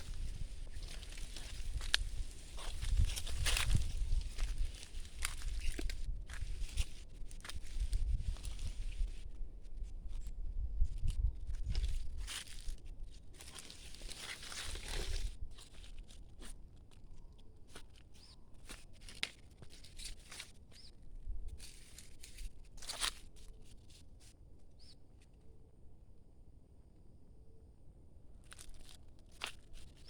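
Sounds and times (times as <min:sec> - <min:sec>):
footsteps through dry leaves: 0:00.0 - 0:09.2, 0:11.8 - 0:12.8, 0:13.4 - 0:16.2.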